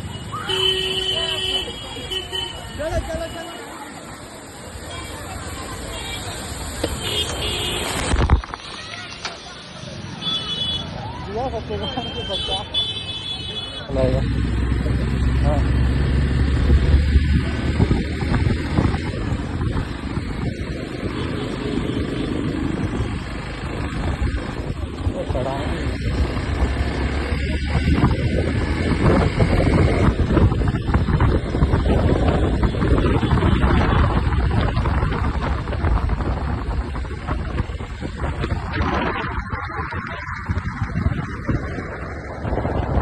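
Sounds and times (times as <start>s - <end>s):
motorcycle engine running: 14.0s - 43.0s
wind buffeting microphone: 14.0s - 43.0s.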